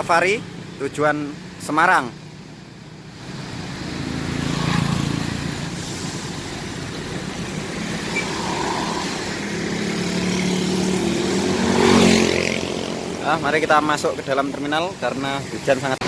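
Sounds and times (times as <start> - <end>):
bus diesel engine: 0.0 - 11.8, 12.4 - 16.0
heavy rain hiss: 4.9 - 10.2.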